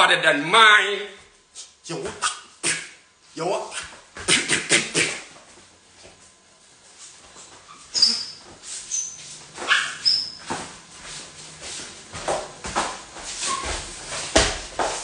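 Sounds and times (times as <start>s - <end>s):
dog squeaks: 7.7s - 10.4s.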